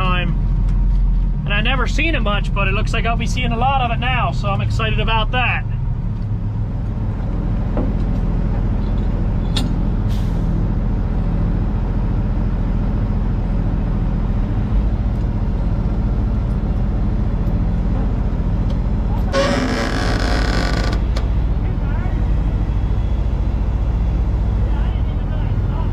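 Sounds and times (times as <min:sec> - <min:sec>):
truck diesel engine idling: 0:21.0 - 0:25.9.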